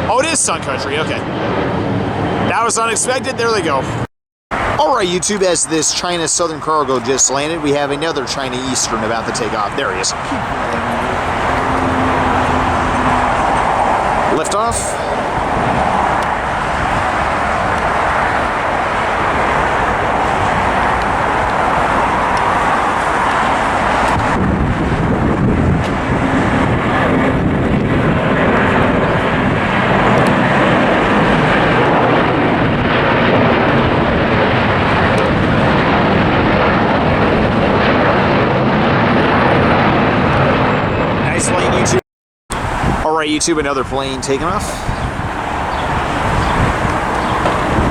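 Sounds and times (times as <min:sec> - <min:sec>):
jet engines roaring: 0:00.0 - 0:47.9
deep low rumble: 0:09.2 - 0:41.3.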